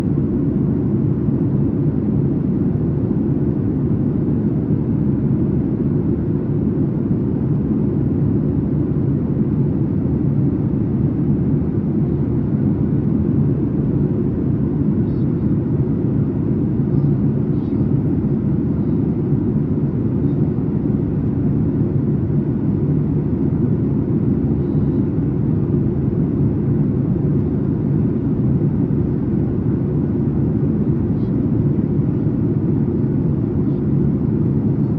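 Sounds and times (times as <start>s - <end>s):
jet engines low rumble: 0.0s - 34.9s.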